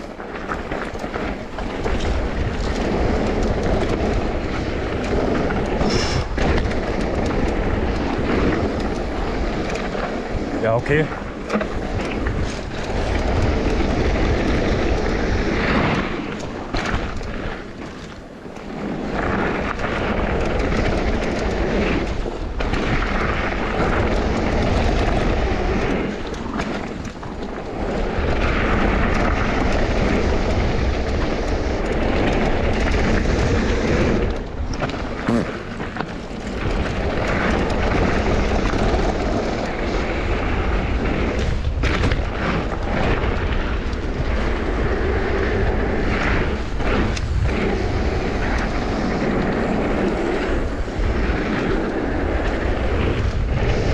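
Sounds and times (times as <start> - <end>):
bike rattling over trail: 0.0 - 53.9
wind rushing over microphone: 0.0 - 53.9.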